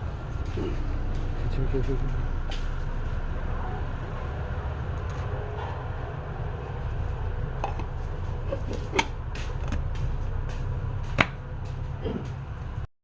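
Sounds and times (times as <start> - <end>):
low machine hum: 0.0 - 12.9
sharp knocks or clicks: 8.7 - 11.4.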